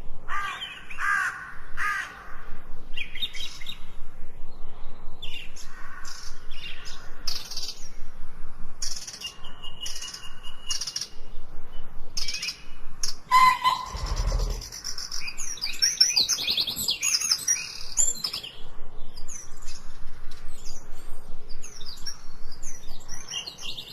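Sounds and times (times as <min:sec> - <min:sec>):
songbirds chirping: 0:00.0 - 0:23.9
bird thin steady whistle: 0:13.3 - 0:14.7
low rumble: 0:13.7 - 0:15.1.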